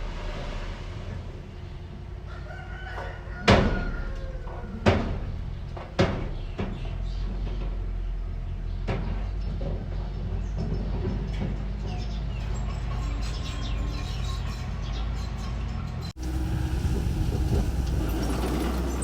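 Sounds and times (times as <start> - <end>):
machinery engine drone: 0.0 - 2.3, 16.1 - 19.0
rooster crowing: 2.3 - 4.8.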